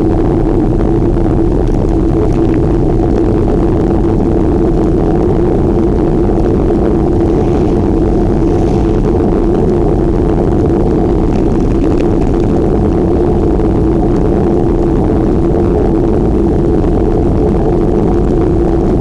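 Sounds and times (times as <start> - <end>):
wind and road rush: 1.4 - 15.5.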